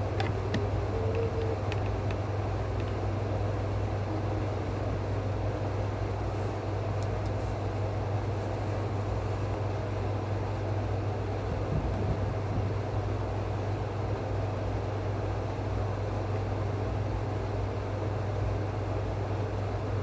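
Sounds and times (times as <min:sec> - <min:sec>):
faint clicks: 0:00.2 - 0:02.2.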